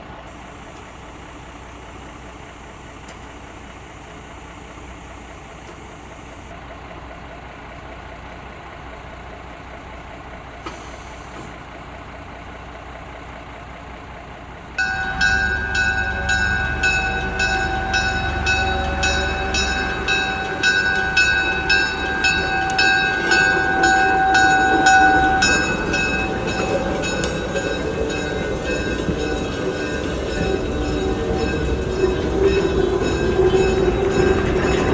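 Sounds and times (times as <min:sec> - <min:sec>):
train running on rails: 0:00.0 - 0:34.9
low rumble: 0:14.8 - 0:34.9.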